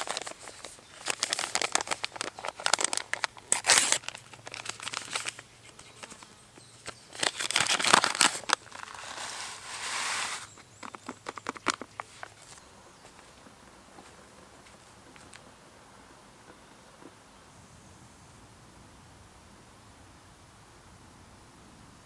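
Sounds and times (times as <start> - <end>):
rustling and crinkling: 0.0 - 15.6.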